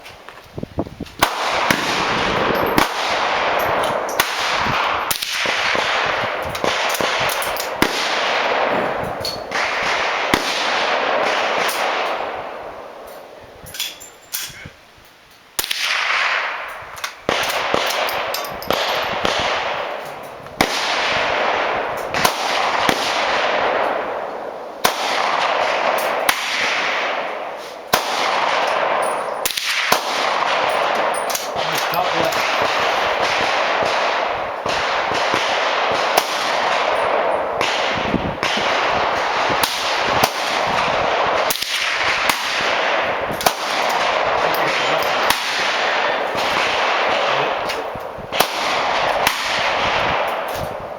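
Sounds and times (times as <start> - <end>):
rifle shots with echo: 1.2 - 13.0, 15.6 - 50.9.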